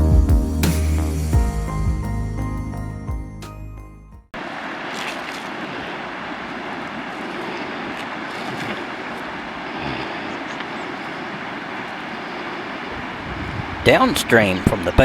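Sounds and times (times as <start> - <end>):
steady rushing noise: 4.4 - 15.0.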